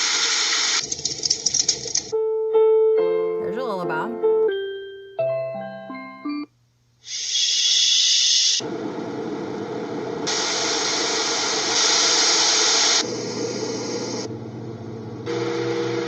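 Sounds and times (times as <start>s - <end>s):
electronic lullaby melody: 2.1s - 6.5s.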